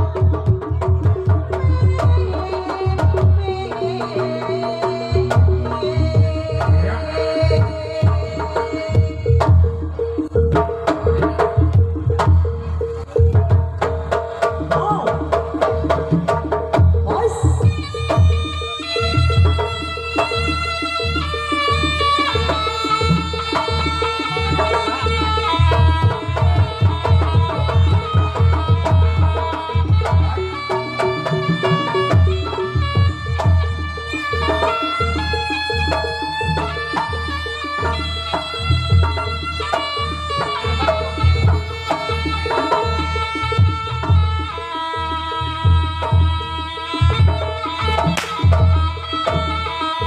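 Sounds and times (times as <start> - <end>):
fast drum beat: 0.0 - 44.3, 45.7 - 49.7.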